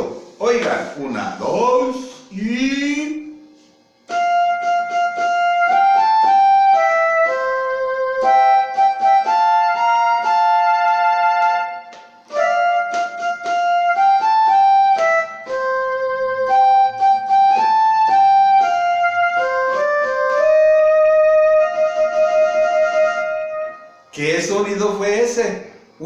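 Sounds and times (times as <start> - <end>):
flute melody: 1.9 - 24.5.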